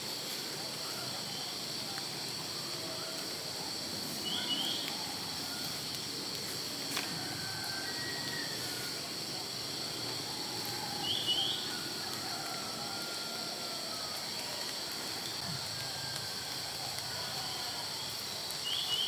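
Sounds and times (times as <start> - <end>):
insect chorus drone: 0.0 - 19.0
bird chirping: 4.2 - 5.1, 11.0 - 11.7, 18.1 - 19.0
soft whistled bird notes: 4.2 - 5.7, 10.7 - 12.4, 17.4 - 19.0.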